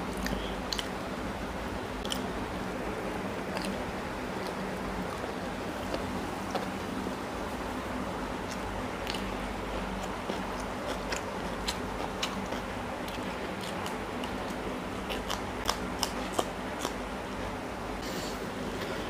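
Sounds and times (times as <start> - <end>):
crunchy biting and chewing: 0.0 - 0.9, 2.0 - 2.3, 3.4 - 6.8, 8.4 - 17.0
low background hum: 0.0 - 19.0.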